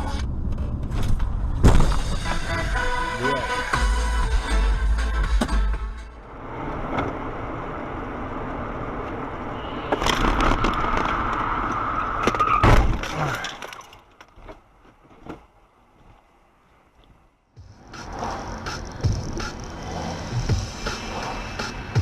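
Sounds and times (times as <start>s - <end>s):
road and vehicle noise: 0.0s - 22.0s.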